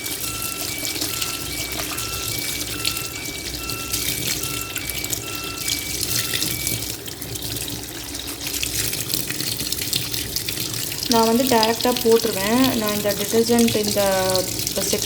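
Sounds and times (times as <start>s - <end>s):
electronic tune of short tones: 0.0s - 7.1s
water filling washing machine drum: 0.0s - 15.0s.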